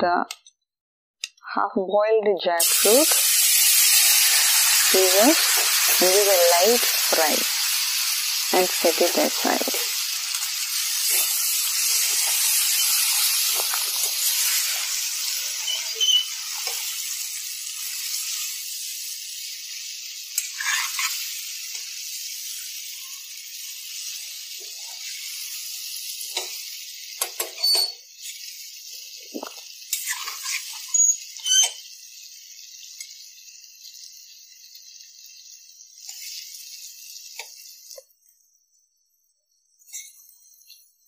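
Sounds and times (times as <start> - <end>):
food sizzling in hot oil: 2.6 - 41.0
metal spoon scraping pot: 20.4 - 21.1.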